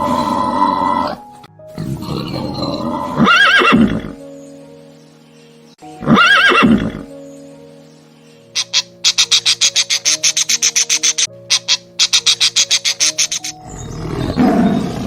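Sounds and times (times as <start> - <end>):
background music: 0.0 - 15.0
horse whinnying: 2.0 - 4.2, 6.0 - 7.1, 13.6 - 15.0.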